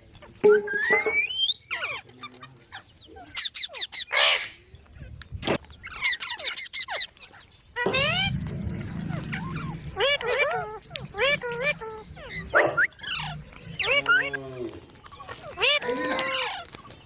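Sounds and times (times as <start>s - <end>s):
parrot squawking: 2.7s - 4.5s, 5.9s - 7.1s, 7.8s - 14.3s, 15.2s - 16.7s.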